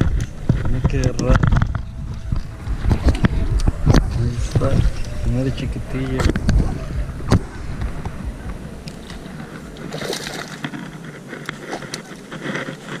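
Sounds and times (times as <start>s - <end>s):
fish flopping and splashing: 8.1s - 13.0s.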